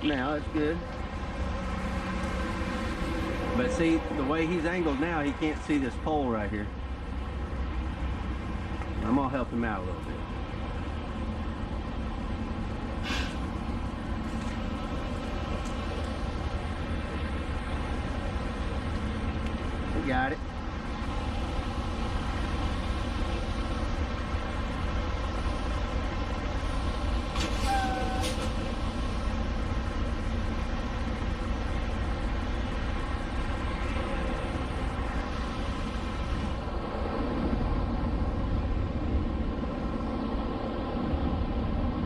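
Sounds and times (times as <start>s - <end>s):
truck diesel engine rumbling: 0.0s - 42.0s
short hiss: 13.0s - 13.5s
short squeak: 27.4s - 28.6s.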